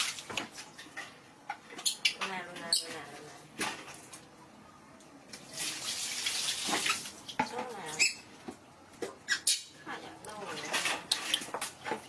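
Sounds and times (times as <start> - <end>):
water running and splashing: 0.0 - 1.0, 5.4 - 7.9.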